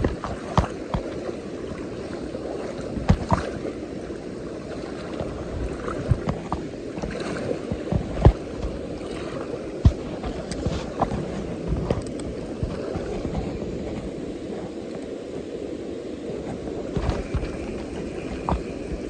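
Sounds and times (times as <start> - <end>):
stream running over rocks: 0.0 - 19.0.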